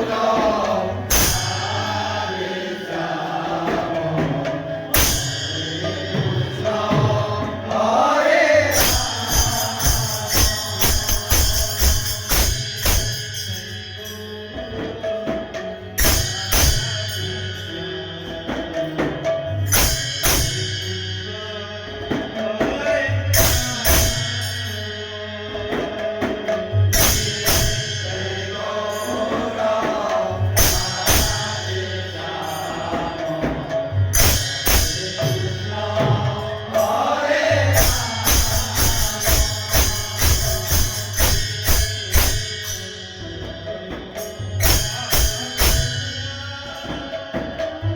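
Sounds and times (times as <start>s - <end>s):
big cymbal clash: 0.0s - 3.0s, 3.6s - 47.6s
drums: 0.0s - 47.9s
jingling hand cymbals: 0.0s - 47.9s
person singing: 5.6s - 12.3s.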